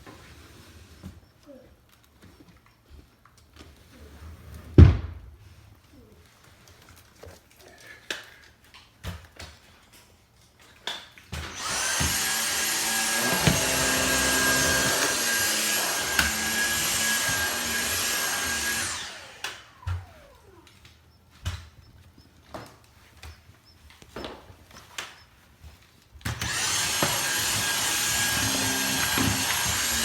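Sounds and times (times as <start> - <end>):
vacuum cleaner whining: 11.4 - 20.9, 26.3 - 30.0.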